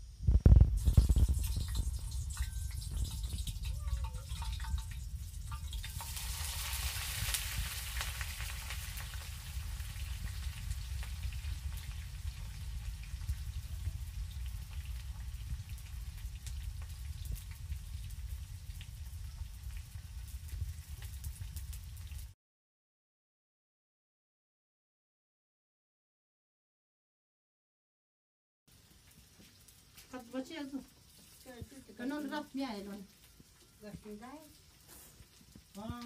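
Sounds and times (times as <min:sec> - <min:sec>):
low steady rumble: 0:00.0 - 0:22.3
onion sizzling in hot oil: 0:00.0 - 0:22.4, 0:28.7 - 0:36.0.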